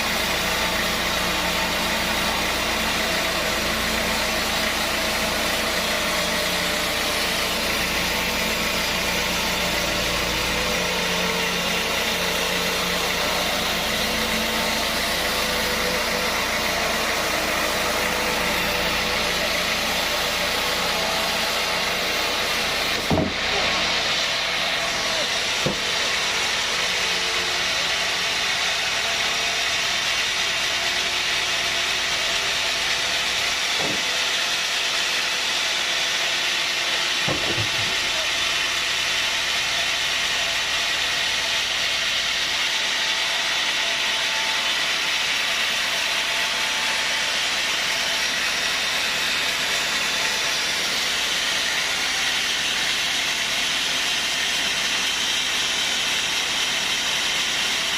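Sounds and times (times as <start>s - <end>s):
motor hum: 0.0s - 34.6s
sawmill machinery running: 0.0s - 57.9s
sharp knock: 23.0s - 23.4s.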